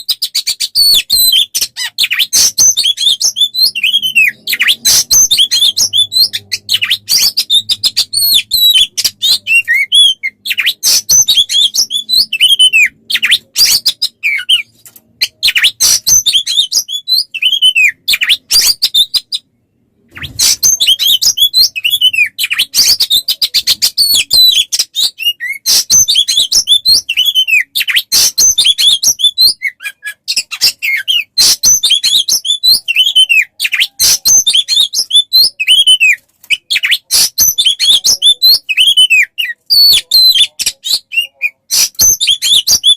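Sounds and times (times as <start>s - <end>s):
songbird chirps and whistles: 0.0s - 42.9s.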